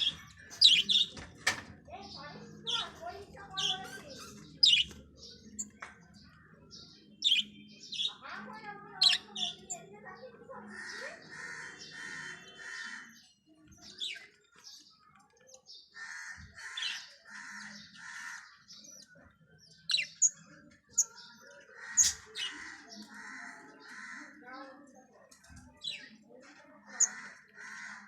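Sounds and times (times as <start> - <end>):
budgerigar chicks raspy calls: 10.7 - 13.2, 16.0 - 18.8, 21.8 - 24.4, 26.9 - 28.0.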